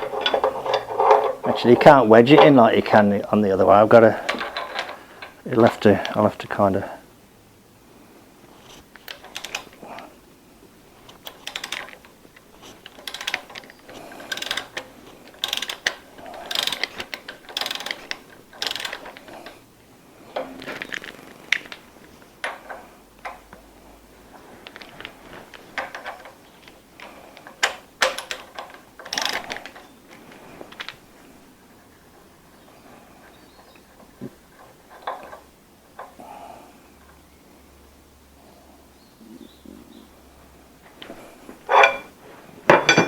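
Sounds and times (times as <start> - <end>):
metal tools clinking and scraping: 0.0 - 6.4, 11.1 - 19.6, 24.3 - 30.0, 41.6 - 43.0.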